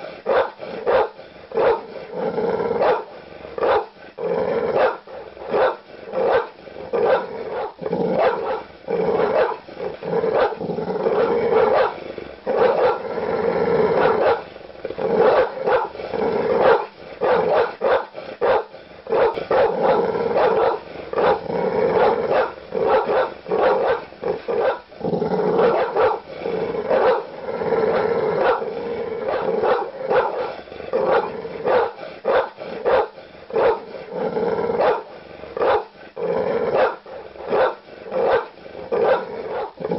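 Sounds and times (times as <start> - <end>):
large dogs barking aggressively: 0.0 - 39.9.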